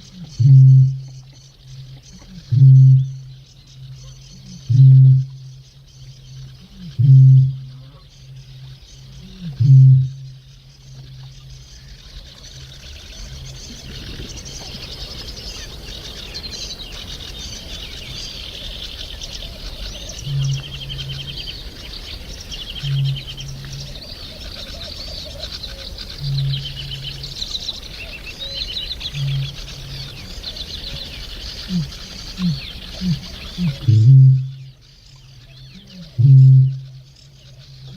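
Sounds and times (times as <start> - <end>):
small birds chattering: 0.0 - 37.9
bittern booming: 33.0 - 34.6.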